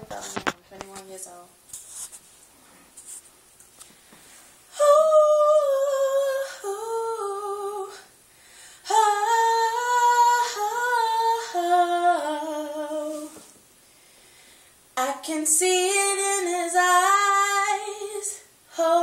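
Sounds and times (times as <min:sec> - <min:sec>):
woman singing unaccompanied: 0:04.7 - 0:08.1, 0:08.8 - 0:13.5, 0:15.0 - 0:19.0.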